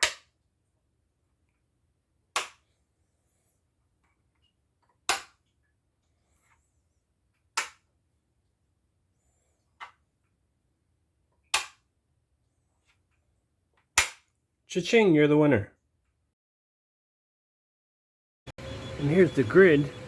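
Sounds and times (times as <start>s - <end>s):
plastic pieces snapping onto board: 0.0s - 0.3s, 2.4s - 2.6s, 4.9s - 5.4s, 7.5s - 7.8s, 11.5s - 11.8s, 13.8s - 14.3s.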